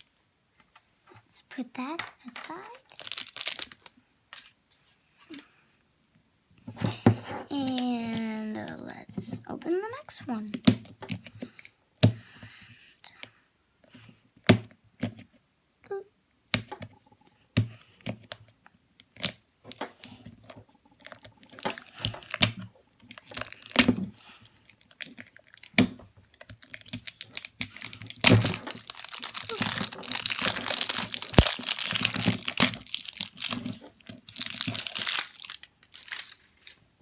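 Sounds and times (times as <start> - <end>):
plastic wrapping crinkling and tearing: 2.4 - 4.6, 21.0 - 36.8
clicks and taps on plastic package: 21.0 - 36.3.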